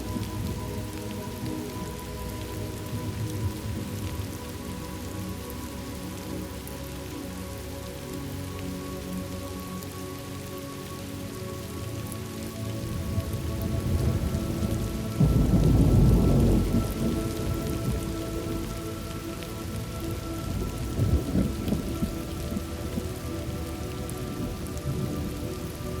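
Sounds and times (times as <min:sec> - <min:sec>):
steady rain: 0:00.0 - 0:26.0
rolling thunder: 0:13.1 - 0:18.6, 0:20.5 - 0:23.2.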